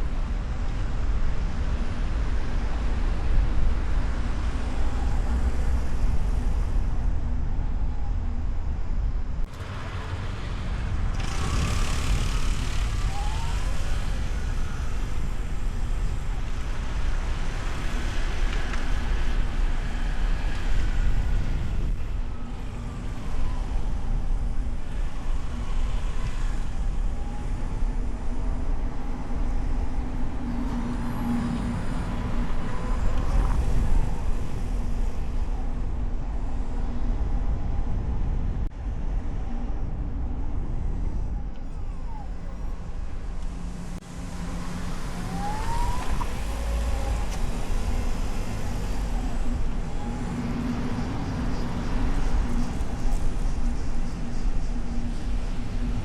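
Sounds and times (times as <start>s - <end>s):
road and wind rumble: 0.0s - 56.0s
passing car and truck engines: 9.5s - 36.8s, 43.4s - 56.0s.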